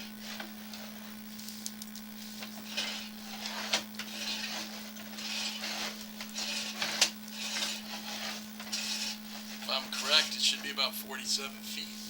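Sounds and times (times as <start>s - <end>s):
steady electrical hum: 0.0s - 12.0s
push rod scraping: 2.3s - 10.9s.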